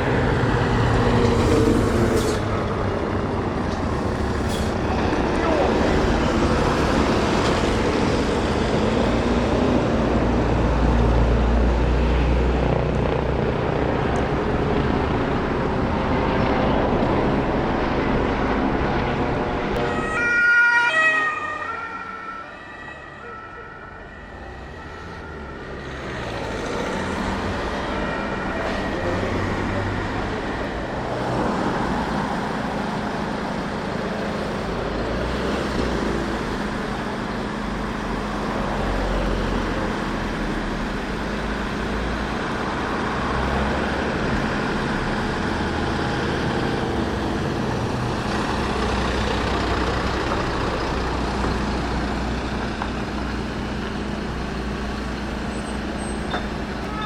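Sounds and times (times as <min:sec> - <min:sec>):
heavy truck engines running: 0:00.0 - 0:19.9, 0:22.1 - 0:57.0
siren: 0:19.8 - 0:31.2.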